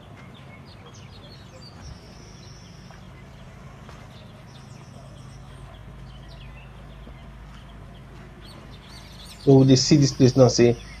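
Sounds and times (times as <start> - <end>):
birds chirping: 0.0 - 11.0
low outdoor background rumble: 0.0 - 11.0.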